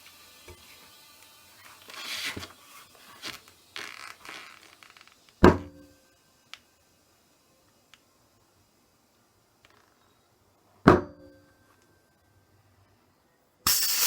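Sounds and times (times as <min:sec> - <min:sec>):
loud knock with ring: 0:10.9 - 0:11.3.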